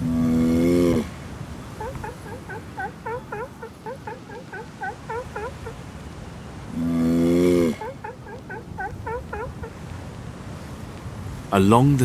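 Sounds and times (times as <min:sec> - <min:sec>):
long steady animal call: 0:00.0 - 0:11.0
animal yelping: 0:01.7 - 0:05.8, 0:07.6 - 0:09.8.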